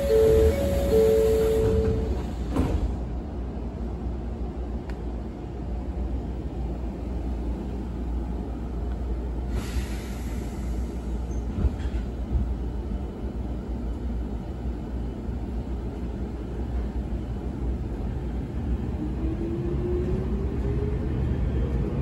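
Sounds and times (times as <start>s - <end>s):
train doors shutting thud: 0.0s - 3.1s, 11.4s - 12.5s
low train rumble: 0.0s - 22.0s
air hissing: 9.5s - 11.2s.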